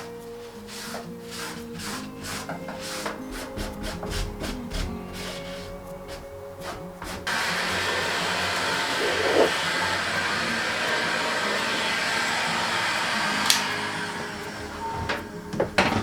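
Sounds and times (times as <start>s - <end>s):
sharp click: 13.4s - 13.8s.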